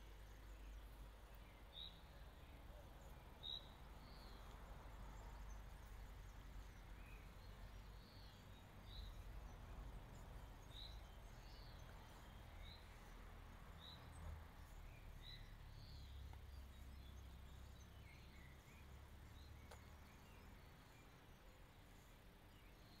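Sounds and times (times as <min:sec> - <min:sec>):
faint low background rumble: 0:00.0 - 0:23.0.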